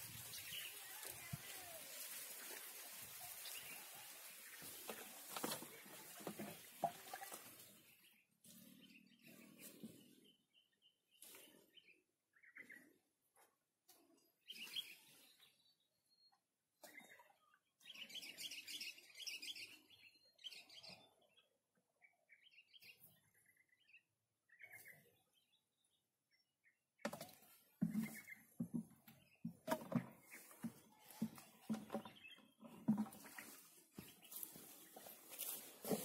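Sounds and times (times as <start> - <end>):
small birds chirping: 0.0 - 36.0
close rustling and knocks: 27.1 - 33.7.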